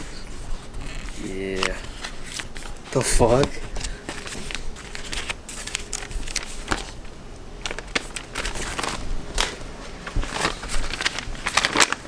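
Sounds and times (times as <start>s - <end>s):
debris rustling and crinkling: 0.2s - 12.0s.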